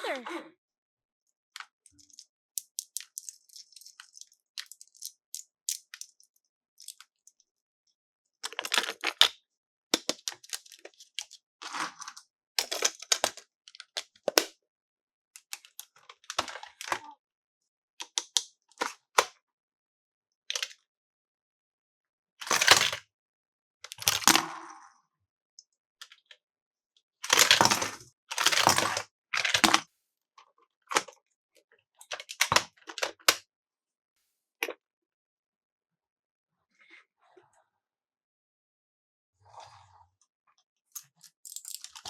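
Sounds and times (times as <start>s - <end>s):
toy packaging crinkling and tearing: 1.9s - 7.0s, 27.3s - 29.8s, 41.4s - 42.0s.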